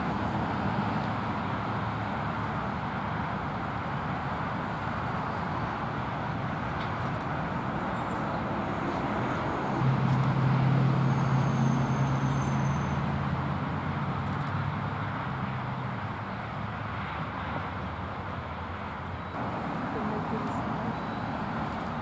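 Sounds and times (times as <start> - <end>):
road traffic noise: 0.0 - 22.0
vehicle engine passing: 19.4 - 22.0.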